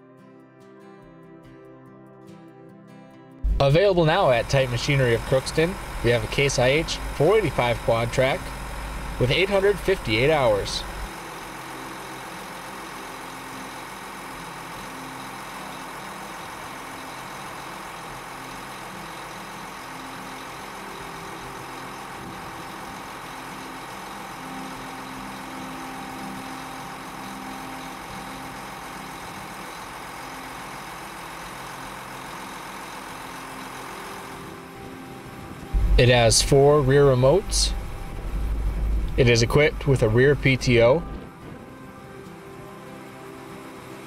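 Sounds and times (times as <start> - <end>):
tractor diesel engine idling: 3.4 - 44.0.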